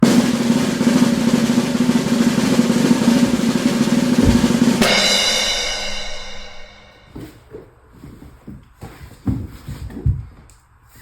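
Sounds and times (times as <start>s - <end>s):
cymbal crash: 0.0s - 7.1s
snare drum roll: 0.0s - 7.1s.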